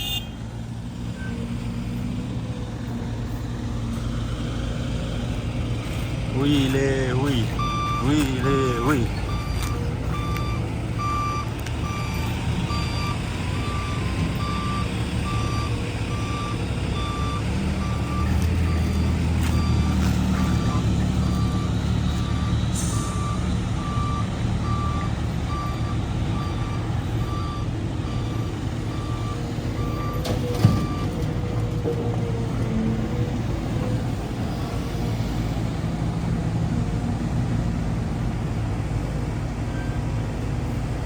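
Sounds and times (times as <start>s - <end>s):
diesel engine running: 0.0s - 41.0s
reversing beeper: 6.4s - 31.2s.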